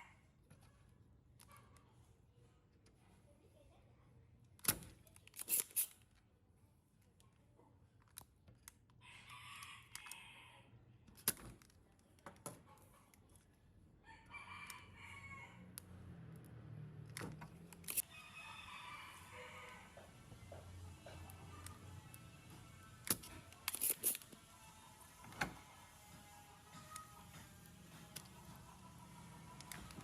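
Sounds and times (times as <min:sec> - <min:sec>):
rooster crowing: 0:14.1 - 0:15.7, 0:18.0 - 0:20.2.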